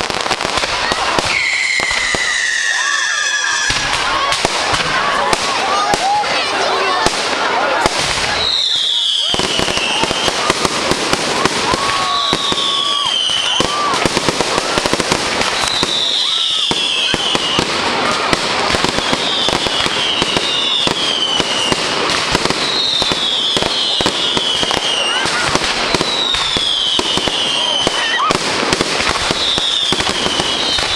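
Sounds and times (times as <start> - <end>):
fireworks crackling and popping: 0.0 - 30.9
firework whistles falling in pitch: 1.2 - 3.9, 8.2 - 10.5, 11.7 - 14.1, 15.4 - 17.8, 18.8 - 28.4, 29.2 - 30.9.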